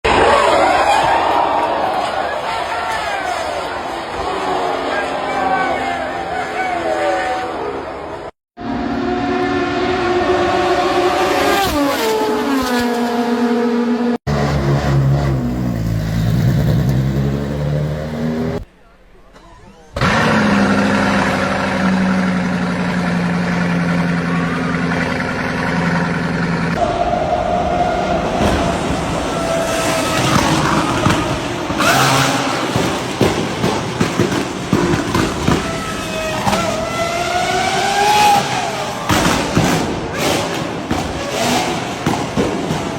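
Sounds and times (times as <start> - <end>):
car engine at high revs: 8.6 - 18.7, 20.0 - 27.0, 27.9 - 35.4, 36.0 - 42.9
deeper engine running: 14.3 - 31.7.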